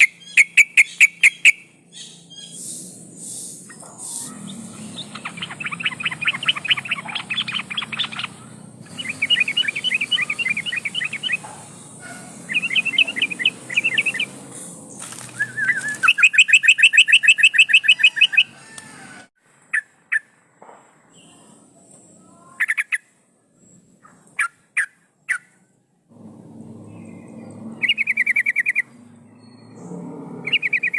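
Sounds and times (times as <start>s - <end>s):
bulbul singing bubbly chatter: 0.0s - 14.7s.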